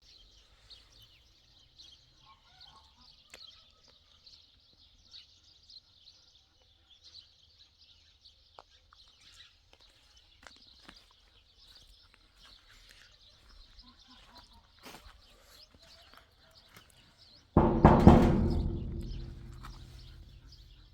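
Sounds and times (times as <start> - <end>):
small birds chirping: 0.0 - 20.9
low steady hum: 17.6 - 20.8.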